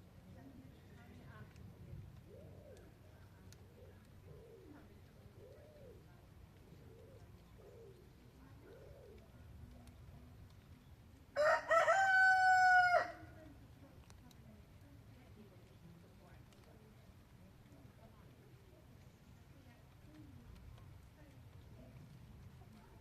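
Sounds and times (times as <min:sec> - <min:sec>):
rooster crowing: 0:11.4 - 0:13.2.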